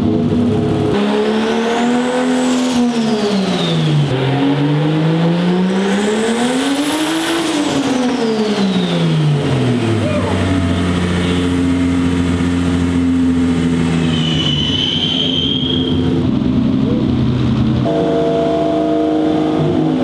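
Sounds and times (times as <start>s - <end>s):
car engine revving: 0.0s - 20.0s
turbo whine: 8.6s - 20.0s.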